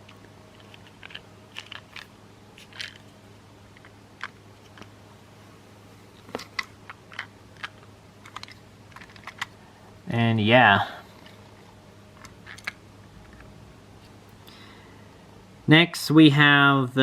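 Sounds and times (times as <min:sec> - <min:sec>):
faint steady hum: 0:00.0 - 0:17.0
plastic toy pieces clicking: 0:00.6 - 0:03.0, 0:06.6 - 0:09.5, 0:12.2 - 0:12.8.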